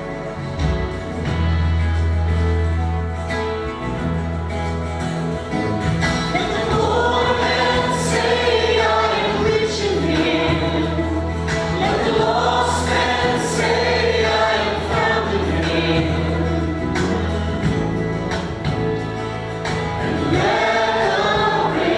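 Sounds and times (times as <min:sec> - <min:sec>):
band playing: 0:00.0 - 0:21.9
group of voices singing: 0:06.3 - 0:17.8, 0:20.0 - 0:21.9.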